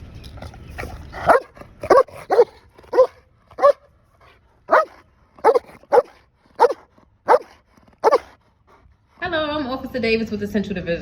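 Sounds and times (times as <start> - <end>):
dog barking: 1.2 - 3.8, 4.7 - 8.3.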